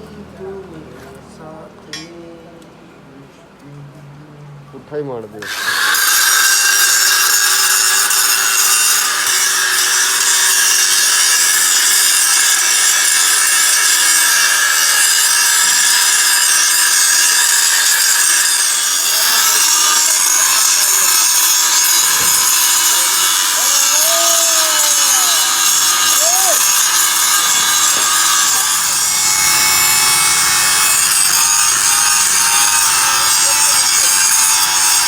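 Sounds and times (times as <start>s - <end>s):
power tool hissing on metal: 5.4s - 35.0s
steady motor tone: 18.4s - 35.0s.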